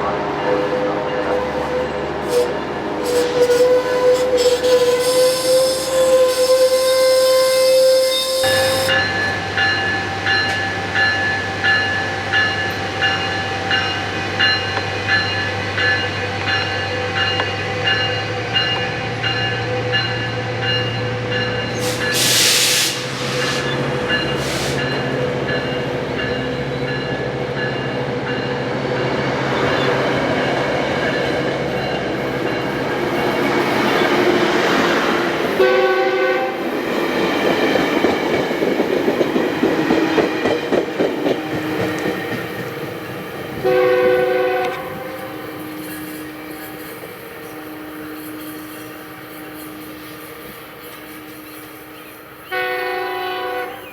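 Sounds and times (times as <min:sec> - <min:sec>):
train horn blast: 0:00.0 - 0:09.5, 0:35.4 - 0:36.7, 0:43.6 - 0:46.7, 0:52.4 - 0:53.9
train engine drone: 0:00.0 - 0:53.9
crossing bell dinging: 0:08.4 - 0:22.2, 0:24.0 - 0:28.7
air hiss burst: 0:21.8 - 0:25.0.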